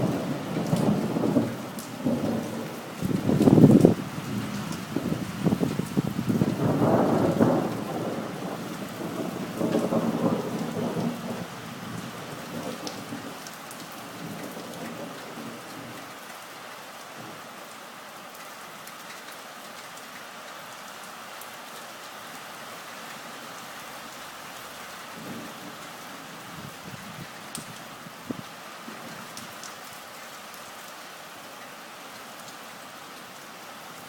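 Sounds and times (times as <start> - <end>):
thunder rumbling: 0.0 - 12.9
rain falling: 0.0 - 34.0.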